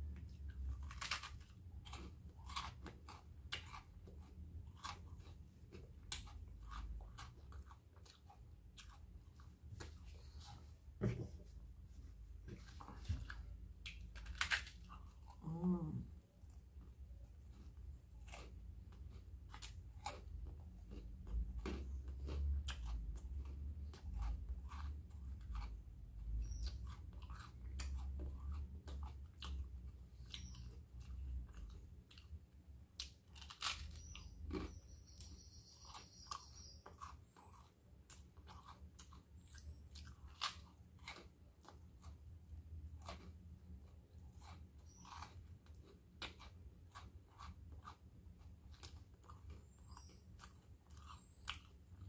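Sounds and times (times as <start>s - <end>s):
wet chewing: 0.0s - 10.6s, 12.7s - 52.0s
crunching crisp toast: 0.4s - 8.2s, 13.8s - 15.3s, 18.1s - 48.0s.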